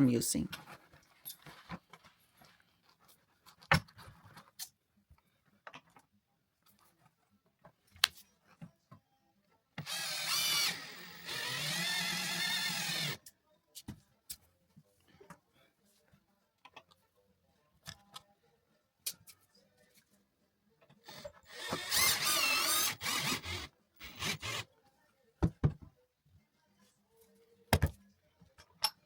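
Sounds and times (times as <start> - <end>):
power drill driving a screw: 9.8 - 13.2, 21.1 - 24.6.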